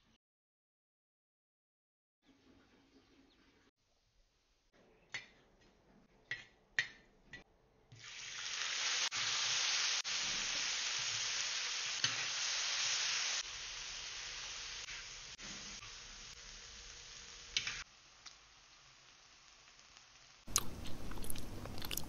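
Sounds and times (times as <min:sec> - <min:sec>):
beans sizzling in hot fat: 0:07.9 - 0:22.0.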